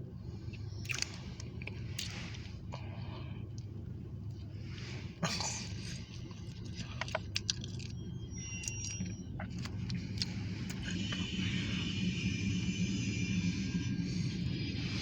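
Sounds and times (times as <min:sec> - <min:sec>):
diesel locomotive engine idling: 0:00.0 - 0:15.0
brief high squeal: 0:08.3 - 0:09.3.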